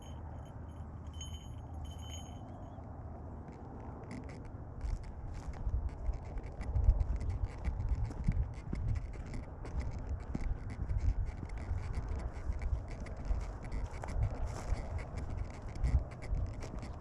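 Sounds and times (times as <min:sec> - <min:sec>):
scratching and rustling: 0:03.5 - 0:17.0.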